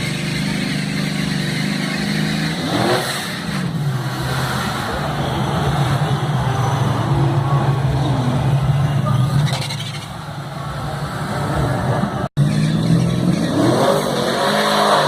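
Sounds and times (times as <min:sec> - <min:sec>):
engines revving hard: 0:00.0 - 0:06.1, 0:11.0 - 0:15.0.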